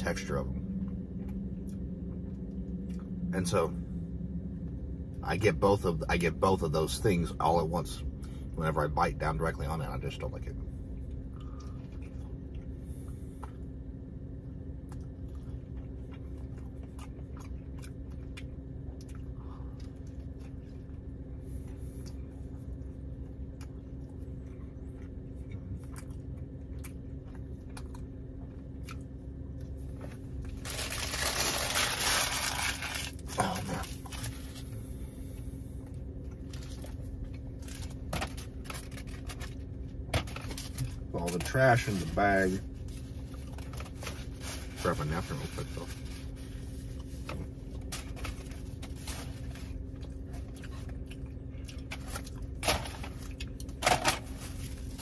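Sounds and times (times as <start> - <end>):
steady low hum: 0.0 - 55.0
chewing and mouth sounds: 10.9 - 30.6, 49.8 - 52.6
food wrapper rustling: 30.5 - 34.6.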